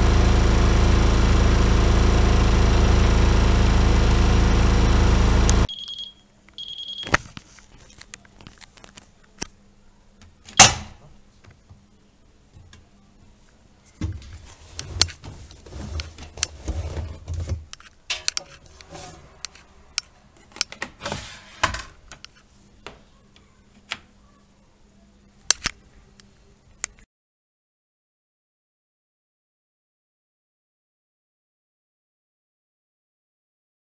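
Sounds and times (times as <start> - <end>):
washing machine running: 0.0 - 5.7, 13.9 - 22.2
short high beeps: 5.7 - 7.2
rustling handling noise: 7.1 - 9.4
clicks and knocks: 17.3 - 18.9.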